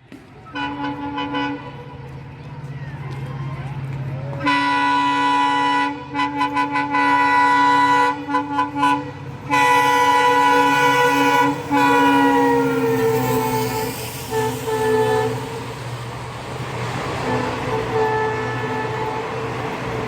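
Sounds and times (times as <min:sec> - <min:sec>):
train rumbling: 0:00.0 - 0:20.0
locomotive air horn: 0:00.5 - 0:02.0, 0:04.4 - 0:15.9, 0:17.1 - 0:19.6.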